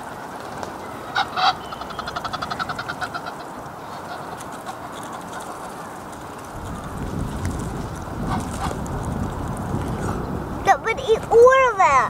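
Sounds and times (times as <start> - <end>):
goose honking: 1.1 - 5.8.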